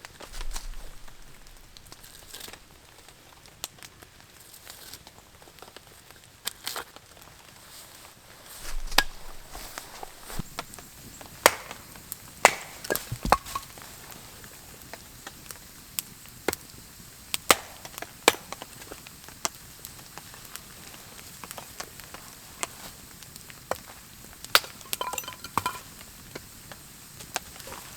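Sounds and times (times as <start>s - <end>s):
wood being chopped: 11.4s - 11.8s, 12.4s - 13.7s, 17.5s - 18.6s.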